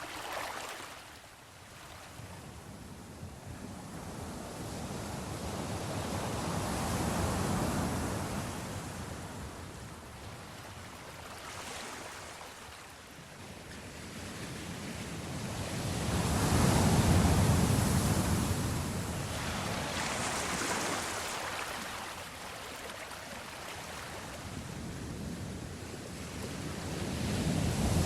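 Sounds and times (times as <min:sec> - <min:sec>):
sea waves washing in: 0:00.0 - 0:01.4, 0:15.6 - 0:28.0.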